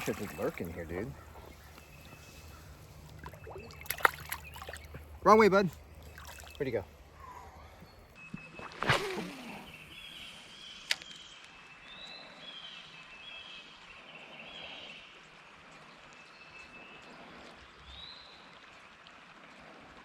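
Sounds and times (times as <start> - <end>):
bird chirping: 0.0 - 8.7
creekside outdoor ambience: 0.0 - 20.0.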